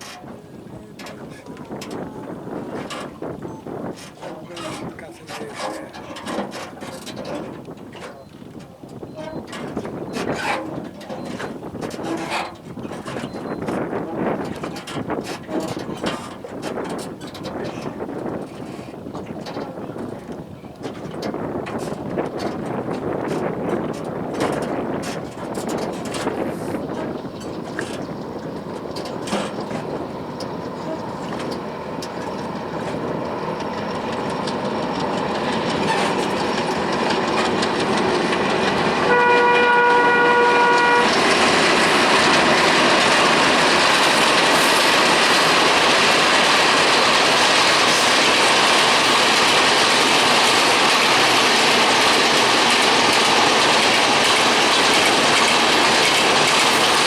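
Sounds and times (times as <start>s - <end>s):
wheels clickety-clack: 0.0s - 57.0s
diesel train passing: 9.0s - 57.0s
train horn blast: 30.8s - 31.6s, 38.7s - 44.9s.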